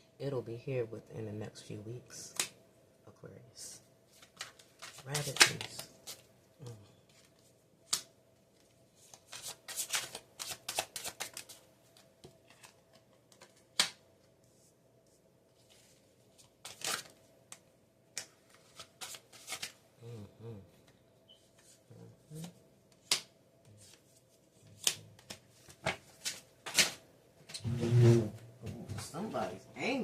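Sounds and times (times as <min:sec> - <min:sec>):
cards shuffling and rustling: 0:04.1 - 0:06.3, 0:07.1 - 0:17.6, 0:18.2 - 0:19.8, 0:21.4 - 0:27.0.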